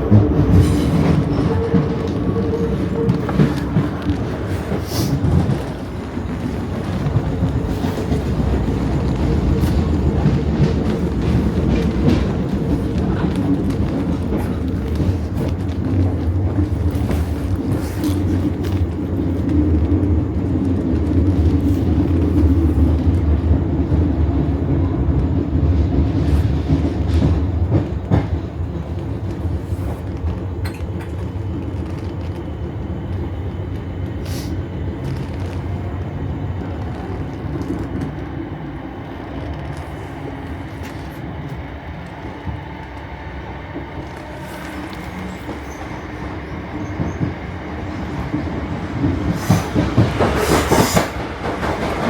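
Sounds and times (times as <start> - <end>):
train rumbling on rails: 0.0 - 52.0.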